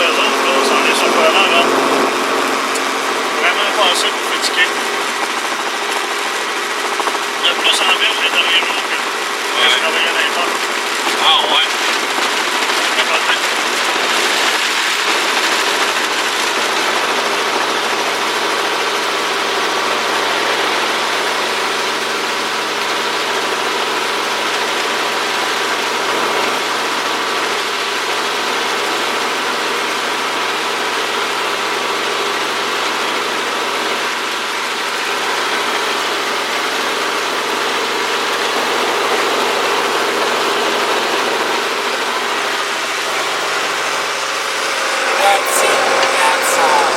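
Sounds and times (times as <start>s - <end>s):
helicopter engine and rotor: 0.0s - 46.9s.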